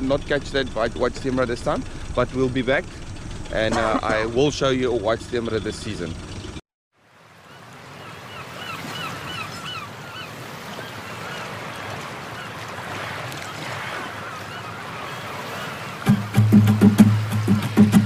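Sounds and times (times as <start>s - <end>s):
rushing water and air: 6.9s - 18.0s
birds calling in short repeated notes: 7.4s - 17.3s.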